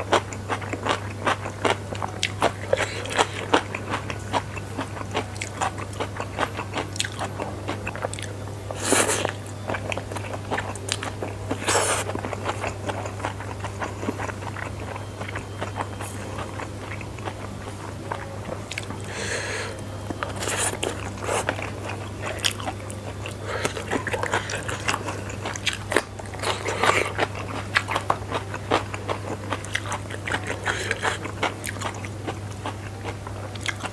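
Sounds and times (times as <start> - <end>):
loud chewing: 0.0 - 33.9.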